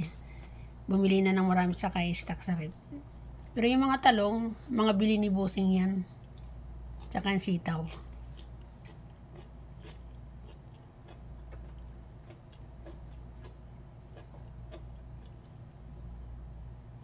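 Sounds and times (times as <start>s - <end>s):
steady low hum: 0.0s - 17.0s
person chewing food: 6.2s - 17.0s.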